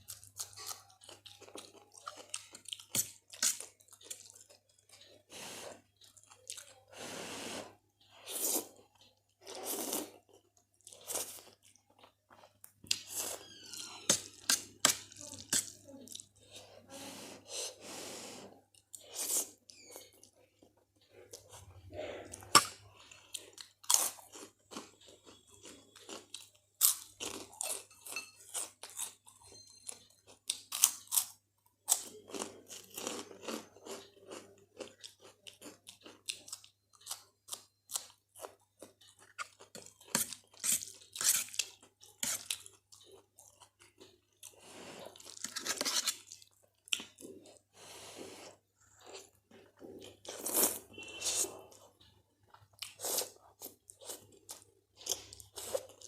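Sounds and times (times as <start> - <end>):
person chewing crunchy snacks: 0.0 - 6.9, 21.3 - 47.7, 48.3 - 56.0.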